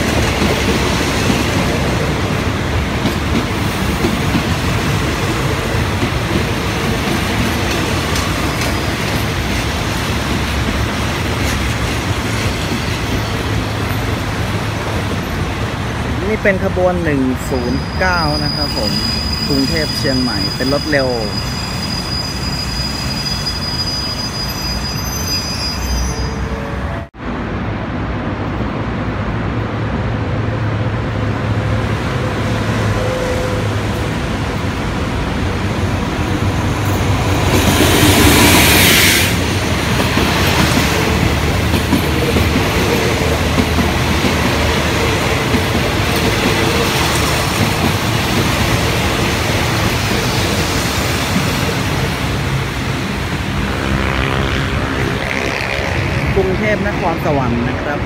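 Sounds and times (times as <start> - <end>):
train wheels rumbling on rails: 0.0 - 16.8, 26.7 - 58.0
diesel locomotive engine: 0.0 - 58.0
wheel squeal: 17.8 - 26.6.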